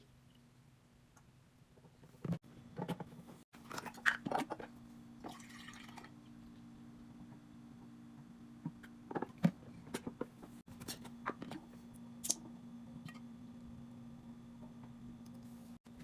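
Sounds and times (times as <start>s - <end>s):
steady low hum: 0.0s - 16.0s
items clicking and knocking: 1.8s - 5.4s.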